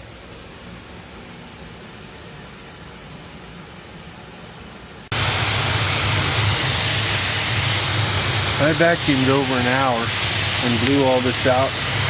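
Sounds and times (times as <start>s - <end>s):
faint steady hiss: 0.0s - 12.0s
pressure washer spraying: 5.1s - 12.0s.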